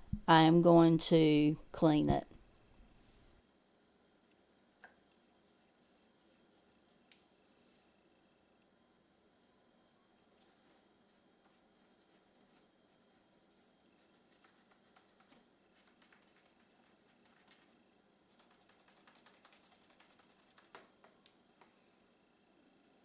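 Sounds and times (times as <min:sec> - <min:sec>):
cotton swab scratching plastic: 0:10.4 - 0:20.9.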